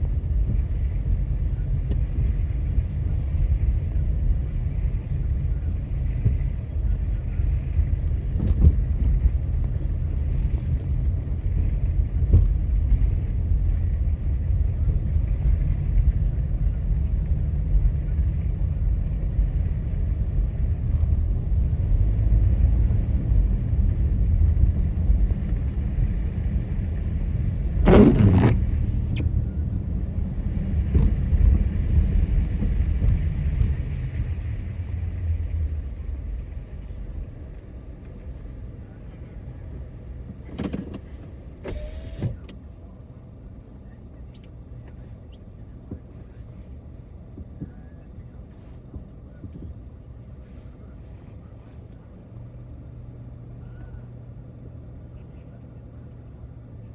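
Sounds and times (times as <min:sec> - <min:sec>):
road and engine rumble: 0:00.0 - 0:56.9
steady hum: 0:24.0 - 0:40.2.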